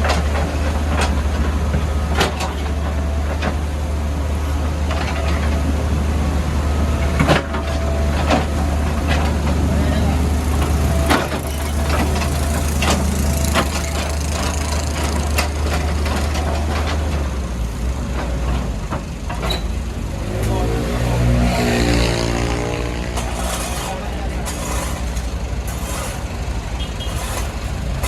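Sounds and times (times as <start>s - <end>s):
diesel engine running: 0.0s - 28.0s
knocks and clatter: 10.6s - 17.4s.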